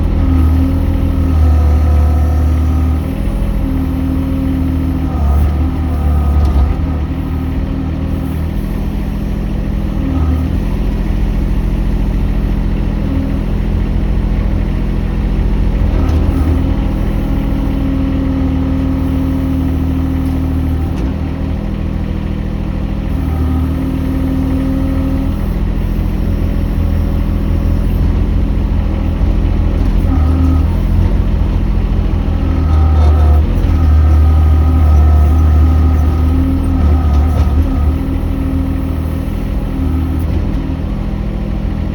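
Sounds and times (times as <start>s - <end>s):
excavator engine running: 0.0s - 41.9s.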